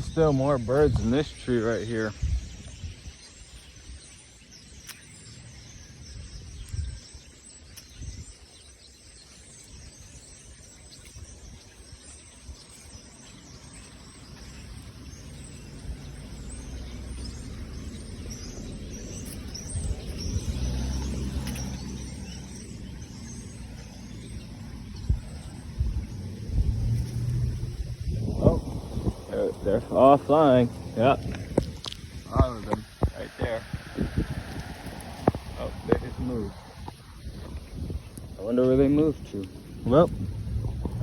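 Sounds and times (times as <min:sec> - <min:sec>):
birds chirping: 0:00.0 - 0:41.0
low rumble: 0:14.7 - 0:41.0.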